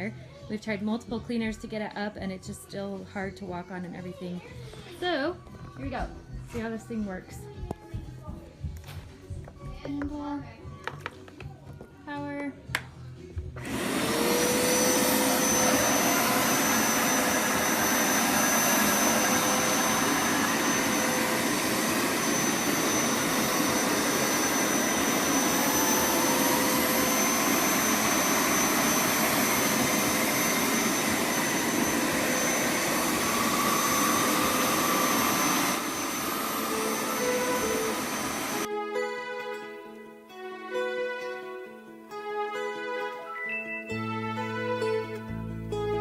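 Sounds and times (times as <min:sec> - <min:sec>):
carpet washer motor whine: 0:13.6 - 0:38.7.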